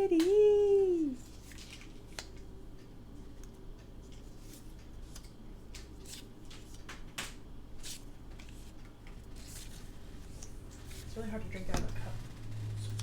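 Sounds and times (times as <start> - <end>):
paper rustling: 1.2 - 2.3, 7.8 - 11.2.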